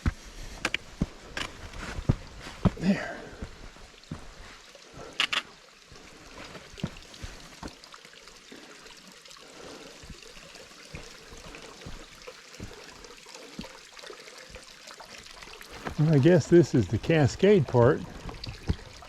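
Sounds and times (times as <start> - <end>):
sharp clicks: 5.2 - 5.5
waterfall splashing into pool: 10.7 - 19.0.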